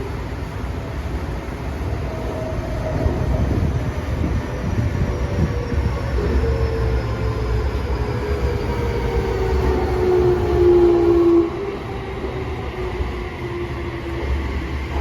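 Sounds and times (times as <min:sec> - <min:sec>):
running train rumble: 0:00.0 - 0:15.0
subway train inverter whining: 0:00.0 - 0:15.0.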